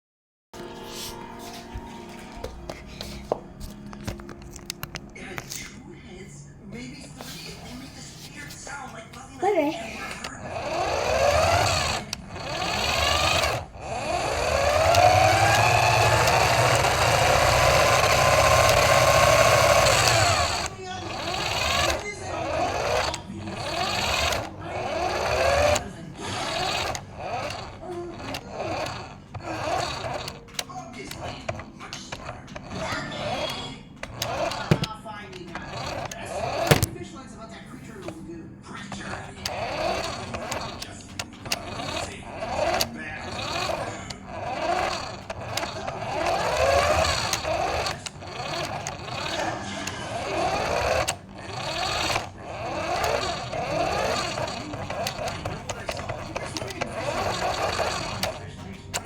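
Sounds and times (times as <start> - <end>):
small electric motor whining: 9.8 - 36.9, 38.9 - 59.0
clicks and knocks: 30.1 - 37.0.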